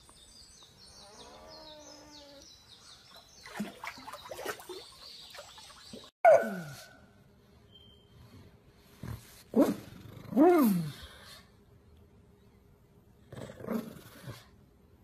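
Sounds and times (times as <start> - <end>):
small birds chirping: 0.0 - 6.1.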